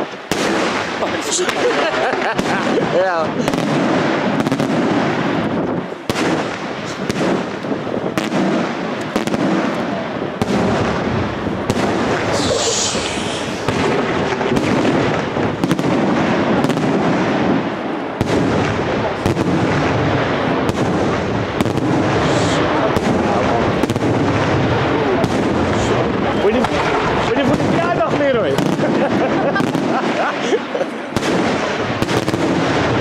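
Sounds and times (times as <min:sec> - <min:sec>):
fireworks bangs: 0:00.0 - 0:33.0
continuous rumble: 0:05.4 - 0:17.1, 0:17.8 - 0:33.0
high hiss: 0:12.2 - 0:13.7.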